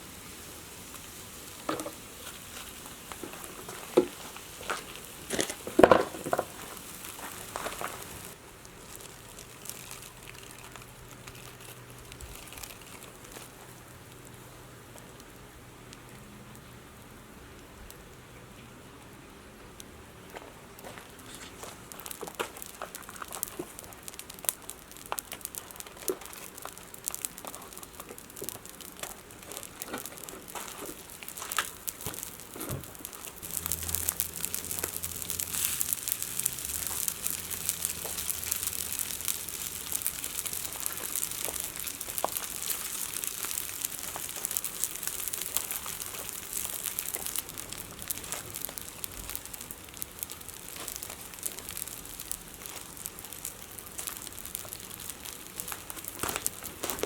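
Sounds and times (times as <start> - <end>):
wood fire crackling: 0.0 - 57.0
low hum: 33.4 - 40.2.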